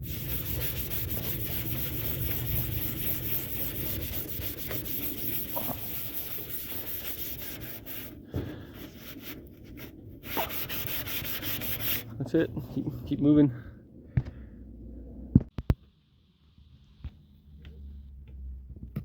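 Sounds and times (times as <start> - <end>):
steel wool scrubbing metal: 0.0 - 12.9.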